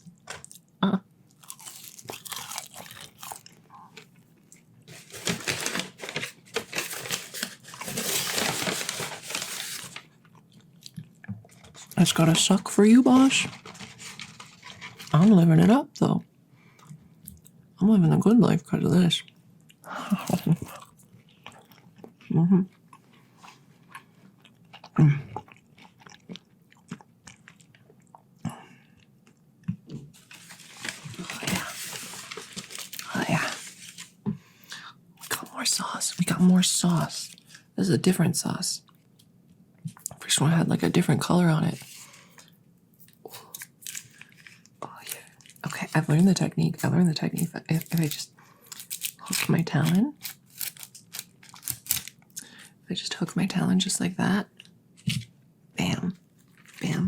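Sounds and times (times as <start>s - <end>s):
crunching and chewing food: 0.0s - 15.4s, 19.2s - 35.6s, 41.8s - 52.7s, 56.1s - 57.0s
paper wrapping crinkling: 4.9s - 10.3s, 11.7s - 15.3s, 30.1s - 34.2s, 47.4s - 52.2s.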